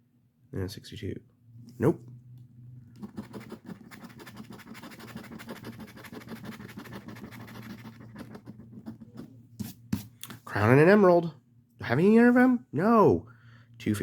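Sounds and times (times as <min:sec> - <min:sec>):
lottery ticket being scratched: 0:03.0 - 0:09.4.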